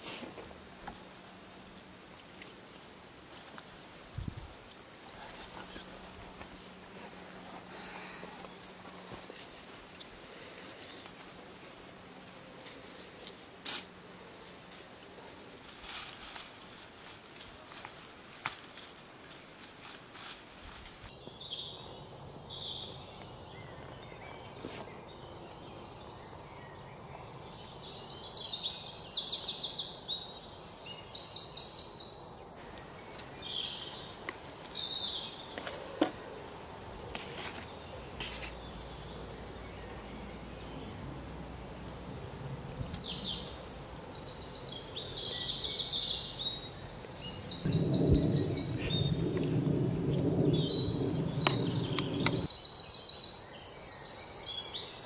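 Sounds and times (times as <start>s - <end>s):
low rustling noise: 0.0s - 21.2s, 46.7s - 52.5s
songbirds singing: 21.1s - 55.0s.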